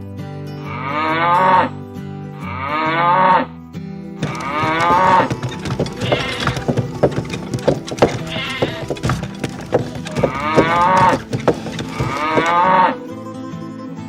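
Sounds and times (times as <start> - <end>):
background music: 0.0 - 14.0
cows mooing: 4.2 - 13.0.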